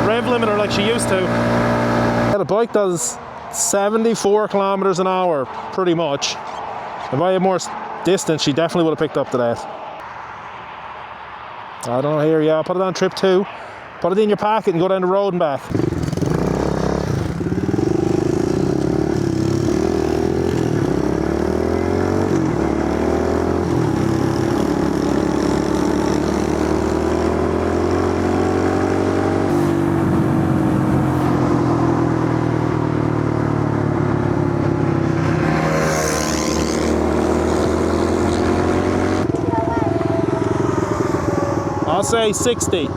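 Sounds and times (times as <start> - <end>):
motorbike engine accelerating: 0.0 - 2.4, 15.7 - 42.9.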